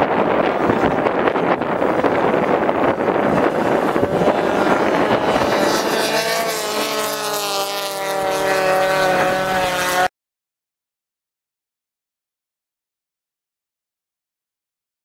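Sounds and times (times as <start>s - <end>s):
race car engines running hard: 0.0s - 10.1s
wind noise: 0.0s - 10.1s.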